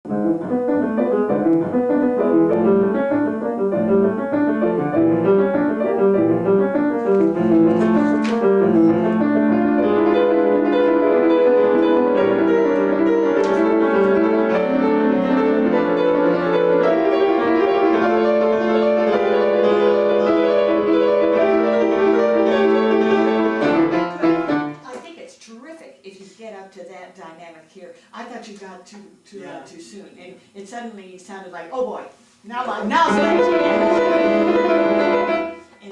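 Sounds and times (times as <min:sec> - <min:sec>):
classical piano piece: 0:00.0 - 0:24.8, 0:32.9 - 0:35.7.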